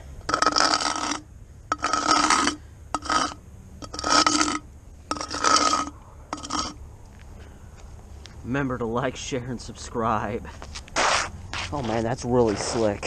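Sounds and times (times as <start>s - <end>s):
shoe sole scraping on snow: 11.0s - 13.0s.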